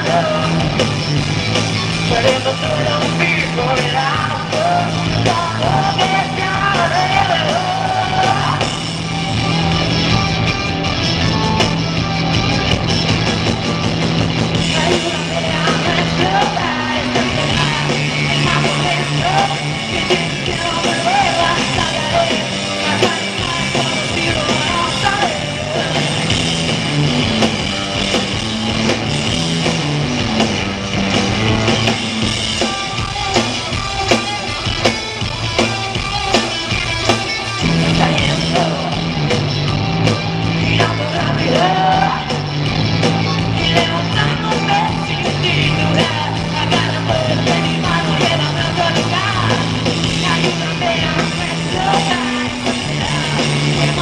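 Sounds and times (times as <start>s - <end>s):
person singing: 0.0s - 0.9s, 2.1s - 10.3s, 14.6s - 26.3s, 32.6s - 39.4s, 40.0s - 54.0s
bass line: 0.0s - 54.0s
drums: 0.0s - 54.0s
live rock band playing: 0.0s - 54.0s.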